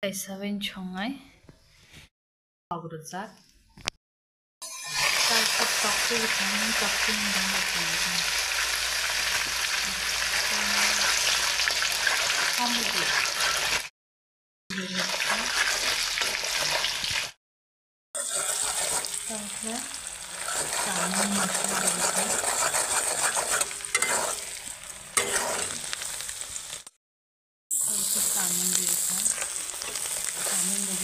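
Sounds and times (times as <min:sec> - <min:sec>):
food sizzling in a wok: 0:04.6 - 0:13.9, 0:14.7 - 0:17.4, 0:18.2 - 0:26.9, 0:27.7 - 0:31.0.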